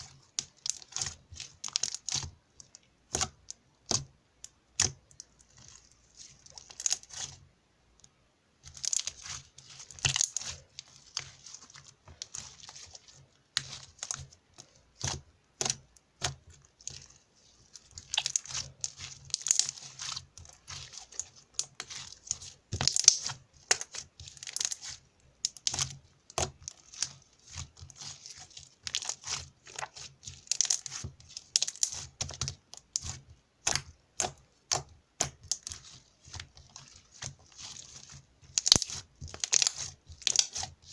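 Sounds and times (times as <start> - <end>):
slime being squished by hand: 0.0 - 7.4, 8.6 - 40.9.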